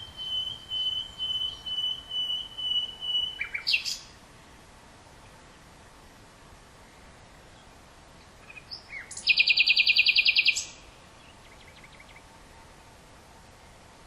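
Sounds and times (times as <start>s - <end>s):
nightingale singing: 0.0s - 4.1s, 8.4s - 12.2s
steady hiss: 0.0s - 9.2s.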